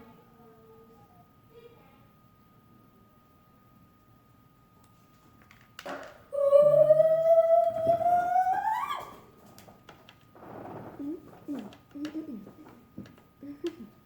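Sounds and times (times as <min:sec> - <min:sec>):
child singing high note: 0:06.3 - 0:09.2.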